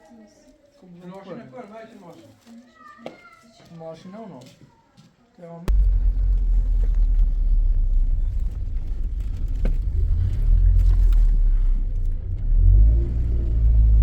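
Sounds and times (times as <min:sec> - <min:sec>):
car engine and road rumble: 0:05.7 - 0:14.0.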